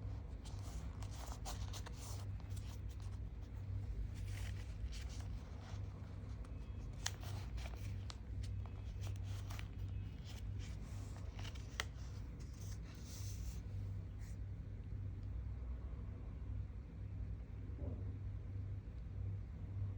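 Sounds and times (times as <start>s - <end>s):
paper crinkling and rustling: 0.0s - 13.8s
steady low hum: 0.0s - 19.9s.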